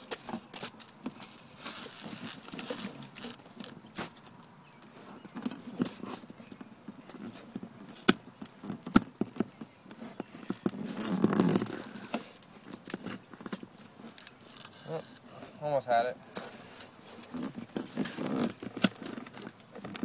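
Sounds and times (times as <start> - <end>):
rustle: 0.0 - 20.0
foil crinkling: 0.4 - 3.8.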